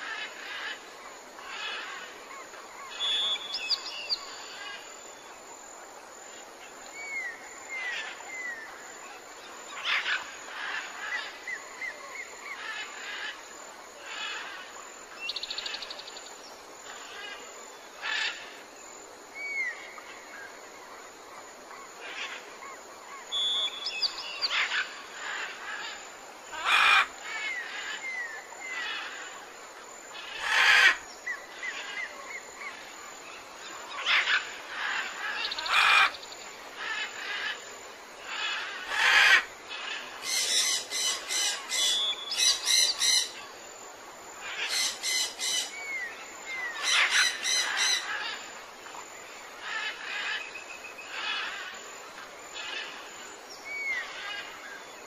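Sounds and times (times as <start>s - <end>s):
birds chirping and whistling: 23.3s - 24.6s, 40.3s - 43.3s.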